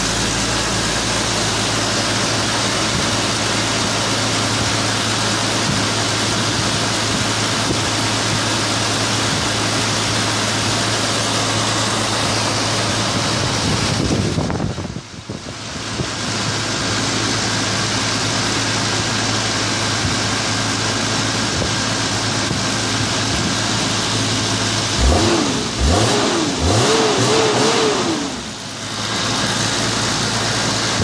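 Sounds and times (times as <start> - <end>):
car engine idling: 0.0 - 31.0
engine revving in blips: 25.0 - 28.5.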